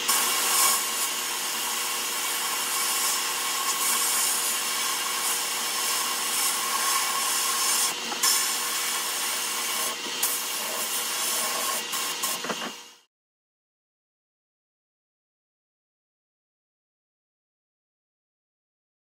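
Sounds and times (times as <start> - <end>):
sandblast gun hissing: 0.0 - 12.5
steady machine hum: 0.0 - 13.1.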